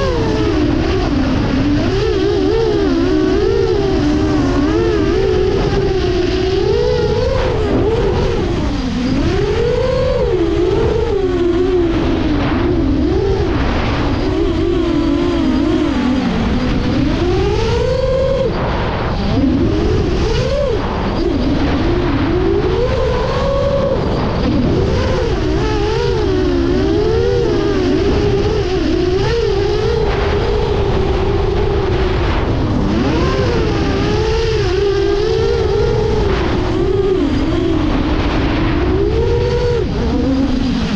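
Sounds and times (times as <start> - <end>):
drone motors whining: 0.0 - 40.9.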